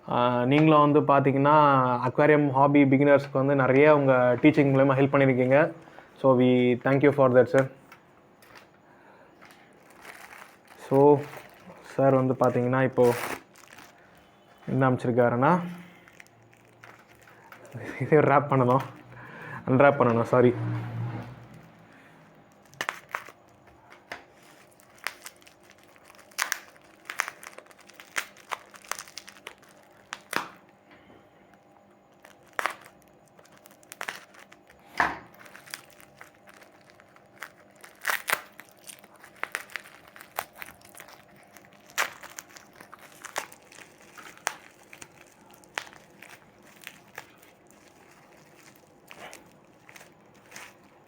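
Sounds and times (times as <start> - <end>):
wrapping paper tearing and crinkling: 8.4 - 19.4, 21.4 - 30.6, 32.1 - 51.0.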